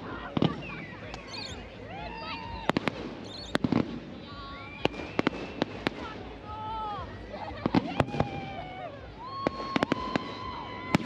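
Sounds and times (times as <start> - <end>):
fireworks bangs: 0.0 - 11.0
people talking and whooping: 0.0 - 11.0.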